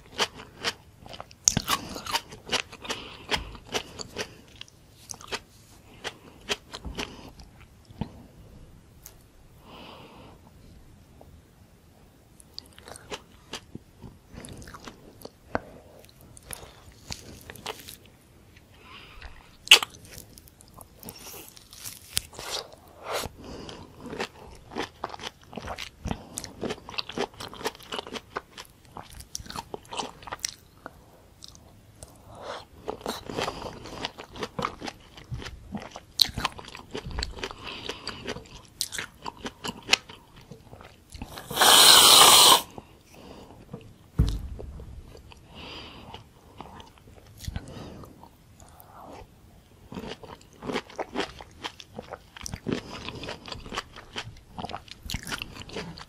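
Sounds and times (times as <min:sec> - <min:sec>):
wet biting and chewing: 0:49.9 - 0:56.0.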